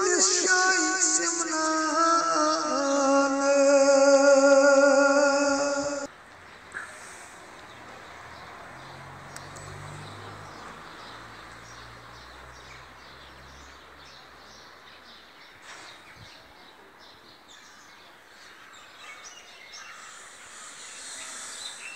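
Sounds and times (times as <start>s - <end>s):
small birds chirping: 0.0s - 21.9s
steady background hiss: 19.8s - 21.9s.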